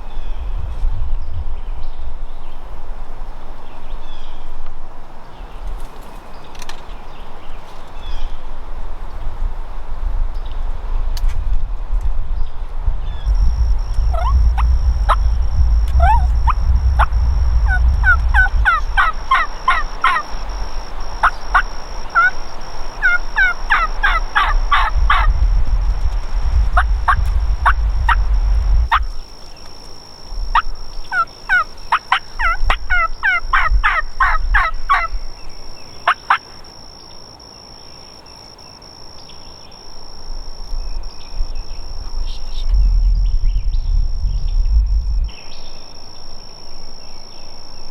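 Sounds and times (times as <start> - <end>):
wind rumbling on microphone: 0.0 - 36.2, 39.8 - 47.9
thin high whine: 13.2 - 35.7
wild turkey calling: 13.3 - 25.4, 26.8 - 28.3, 28.9 - 38.4.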